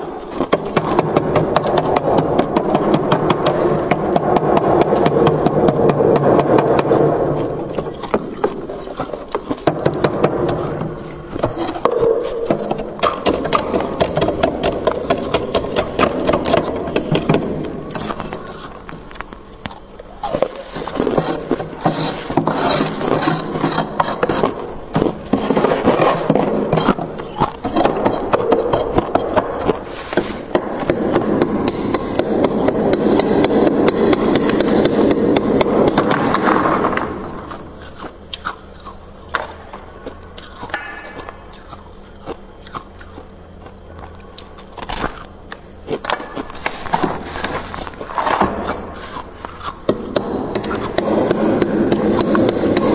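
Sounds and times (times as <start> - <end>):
frost ice crunching: 5.9 - 39.4, 45.9 - 51.2.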